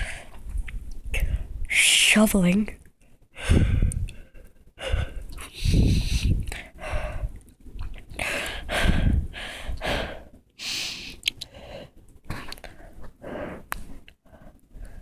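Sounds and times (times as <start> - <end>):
person breathing hard: 0.0 - 0.4, 3.3 - 7.4, 8.2 - 15.0.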